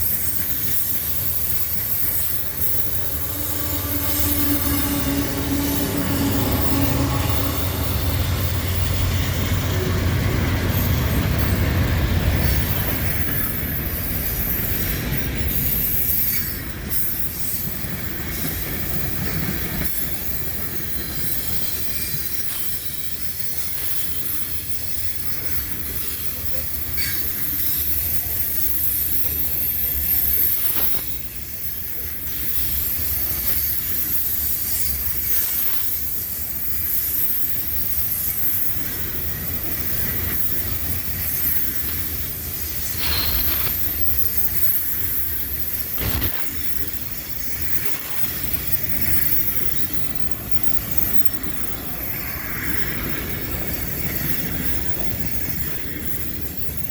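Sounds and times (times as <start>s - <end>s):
high-pitched wheel squeal: 0.0s - 9.7s, 27.9s - 31.5s, 39.9s - 46.2s
freight cars rumbling past: 0.3s - 16.1s
sharp metal clanks: 42.7s - 45.0s.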